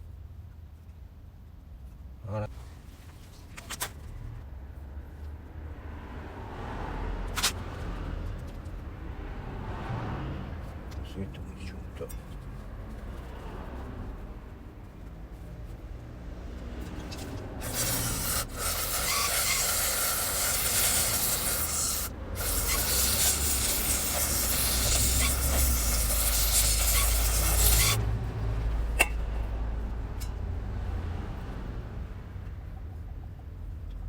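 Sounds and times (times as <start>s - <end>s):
pressurised spray hissing: 17.6s - 28.1s.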